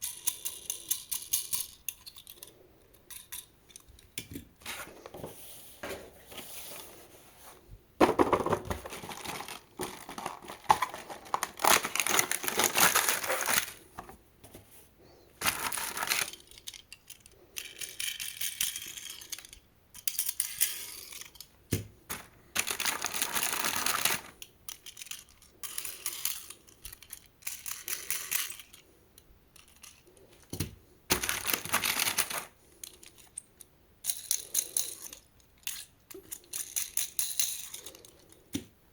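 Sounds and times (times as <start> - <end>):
small clicks and clinks: 0.0 - 4.4
plastic and cardboard crinkling: 4.6 - 14.8, 15.4 - 16.8, 22.1 - 24.4, 29.8 - 32.6.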